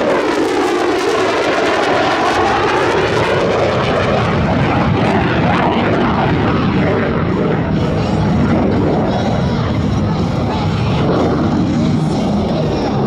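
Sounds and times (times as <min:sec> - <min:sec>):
airplane flying past: 0:00.0 - 0:13.0.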